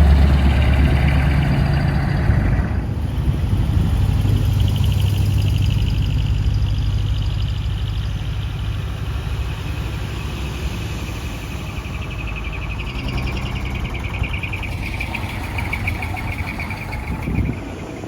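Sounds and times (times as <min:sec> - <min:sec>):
diesel truck engine running: 0:00.0 - 0:18.0
insects trilling: 0:11.2 - 0:17.7.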